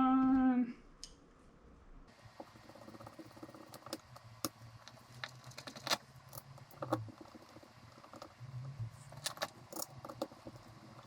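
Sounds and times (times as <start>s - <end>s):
faint steady hum: 0.0s - 11.0s
small metal parts clicking: 9.1s - 11.0s.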